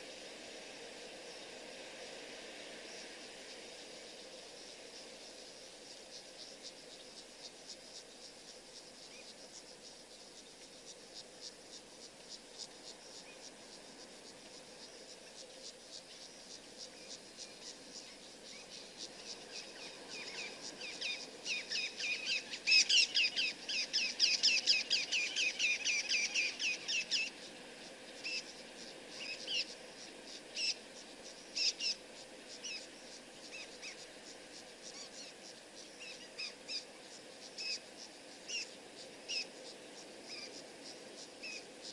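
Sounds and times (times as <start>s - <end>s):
faint steady hiss: 0.0s - 41.9s
high chirping of small animals: 16.1s - 27.4s, 28.0s - 39.7s, 41.4s - 41.7s.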